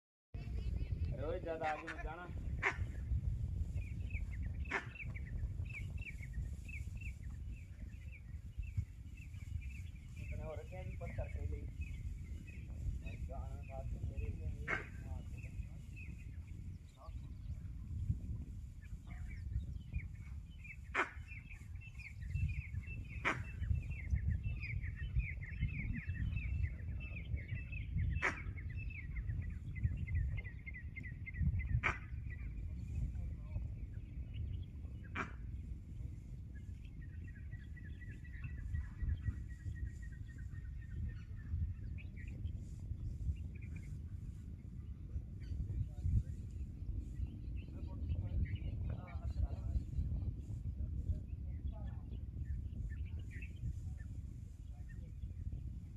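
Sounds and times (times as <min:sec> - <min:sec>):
wind rumble on microphone: 0:00.3 - 0:55.9
bird chirping: 0:00.5 - 0:18.2, 0:18.8 - 0:35.6.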